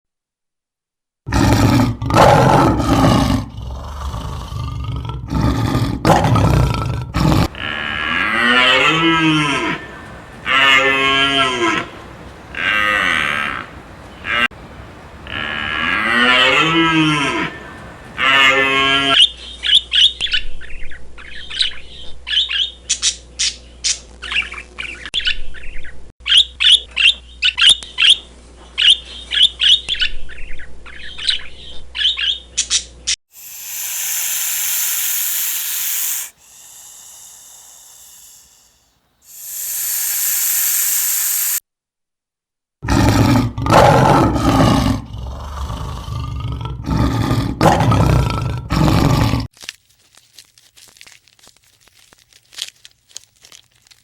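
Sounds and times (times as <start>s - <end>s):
loud deep animal call: 1.3s - 19.2s, 33.4s - 41.6s
cow mooing: 7.4s - 14.5s, 15.2s - 19.2s
hiss-like noise: 9.5s - 16.2s, 17.2s - 18.2s, 33.3s - 41.6s
rapid high bird chirping: 33.4s - 41.6s.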